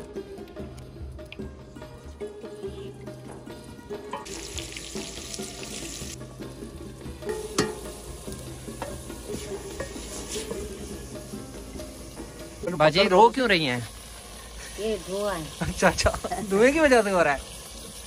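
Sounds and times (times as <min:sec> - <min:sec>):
vegetables sizzling in hot oil: 0:04.0 - 0:18.0
wooden spoon stirring in a pot: 0:07.4 - 0:11.3.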